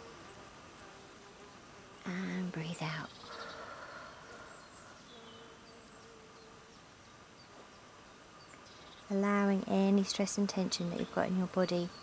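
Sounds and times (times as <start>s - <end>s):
flying insect buzzing: 0.0s - 7.0s.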